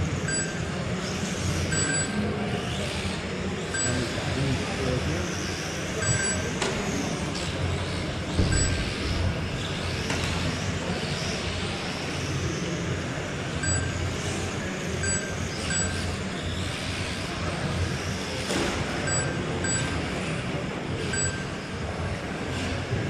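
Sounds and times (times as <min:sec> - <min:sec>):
rc truck motors whining: 0:00.0 - 0:23.0
short electronic beeps: 0:00.3 - 0:00.8, 0:01.7 - 0:02.3, 0:03.7 - 0:04.2, 0:06.0 - 0:06.6, 0:08.5 - 0:09.0, 0:13.6 - 0:14.2, 0:15.0 - 0:16.3, 0:19.0 - 0:20.0, 0:21.1 - 0:21.6.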